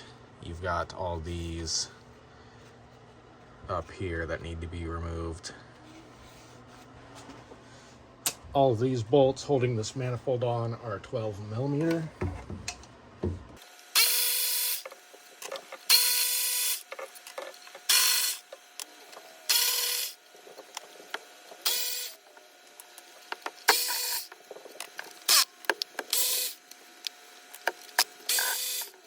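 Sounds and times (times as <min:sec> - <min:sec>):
power ratchet whirring: 0:13.6 - 0:29.0.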